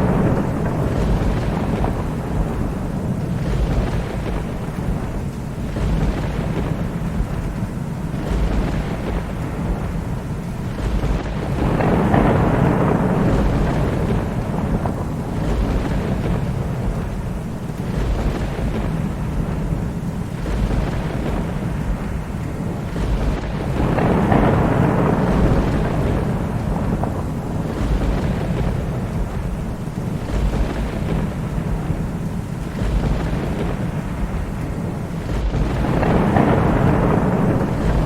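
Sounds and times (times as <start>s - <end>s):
low rolling thunder: 0.0s - 38.0s
steady rain: 0.0s - 38.0s.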